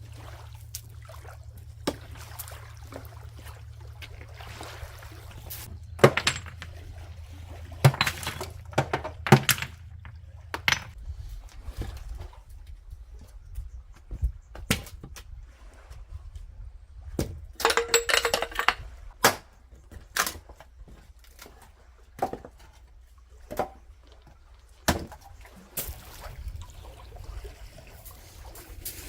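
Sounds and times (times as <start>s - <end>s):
objects knocking and clinking: 6.0s - 6.8s, 7.8s - 11.0s, 17.6s - 18.8s.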